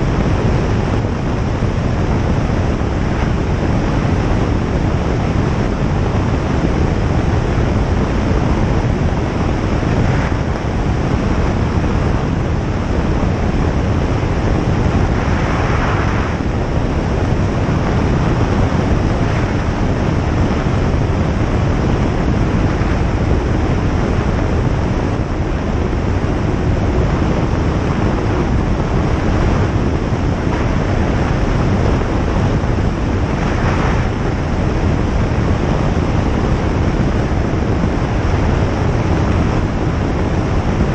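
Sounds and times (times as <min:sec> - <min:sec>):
airflow noise: 0:00.0 - 0:40.9
light aircraft engine and propeller: 0:00.0 - 0:40.9.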